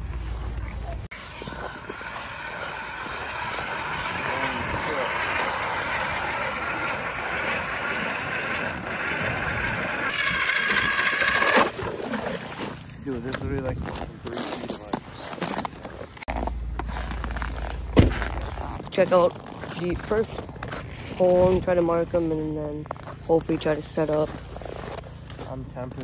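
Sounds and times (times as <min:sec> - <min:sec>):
motor running: 0:01.1 - 0:12.9.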